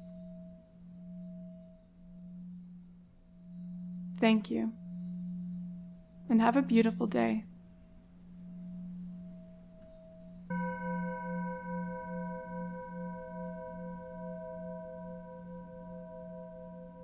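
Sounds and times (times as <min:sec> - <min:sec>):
singing bowl ringing: 0:00.0 - 0:17.0.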